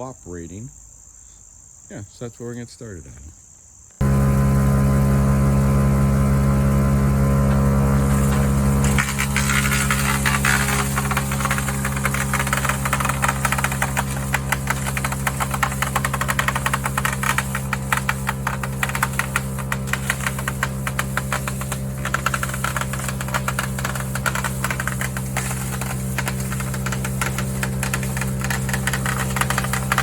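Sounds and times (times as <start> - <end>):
wood chipper engine running: 4.0 - 30.0
wood cracking and clattering: 8.0 - 30.0.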